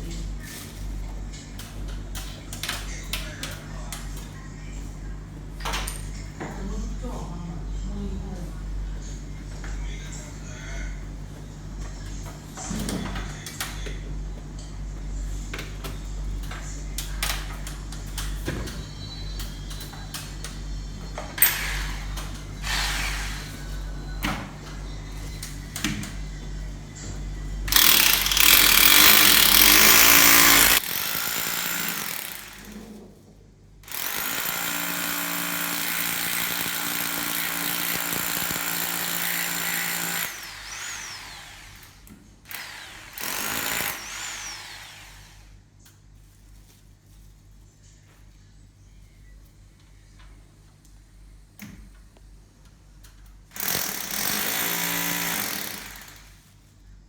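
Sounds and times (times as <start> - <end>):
electric power tool running: 21.4 - 23.5, 27.7 - 32.8, 33.8 - 45.5, 53.6 - 56.3.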